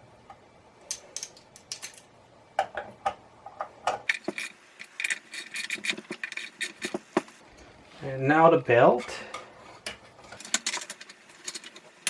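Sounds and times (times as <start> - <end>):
metal parts and tools clinking: 0.9 - 2.1, 9.8 - 12.0.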